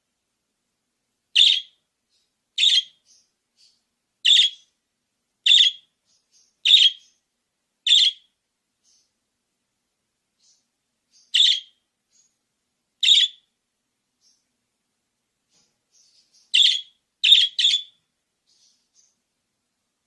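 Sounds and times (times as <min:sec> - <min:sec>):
budgerigar chirping: 0:01.4 - 0:01.8, 0:02.6 - 0:04.8, 0:05.4 - 0:07.2, 0:07.9 - 0:08.3, 0:10.4 - 0:12.3, 0:13.0 - 0:13.5, 0:16.0 - 0:19.2.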